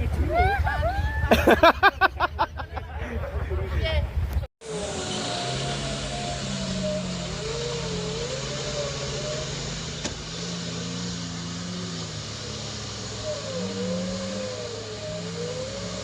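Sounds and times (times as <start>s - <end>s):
vehicle engine running with whine: 4.6s - 16.0s.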